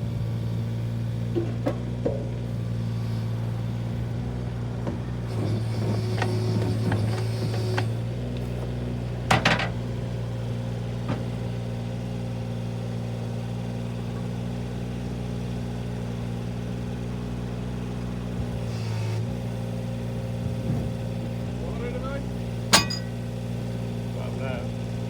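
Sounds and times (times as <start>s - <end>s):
loud metallic clank: 22.7s - 23.3s.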